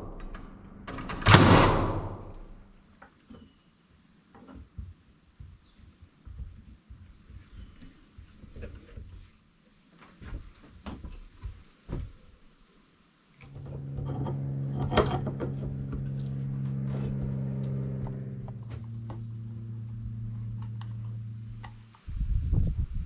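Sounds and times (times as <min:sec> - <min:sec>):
motor humming: 0:13.4 - 0:22.1.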